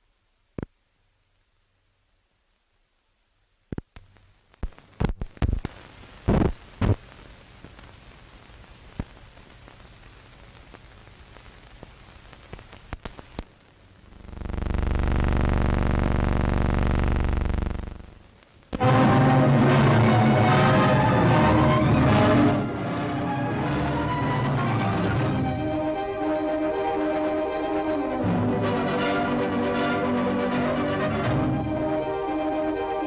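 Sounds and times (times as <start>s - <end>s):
film soundtrack hiss and crackle: 0.0s - 33.0s
loud pops and clicks: 3.7s - 18.8s.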